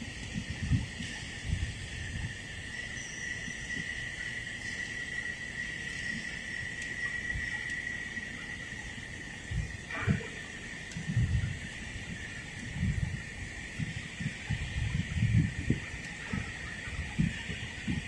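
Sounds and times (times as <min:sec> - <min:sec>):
high-pitched insect drone: 0:00.4 - 0:18.0.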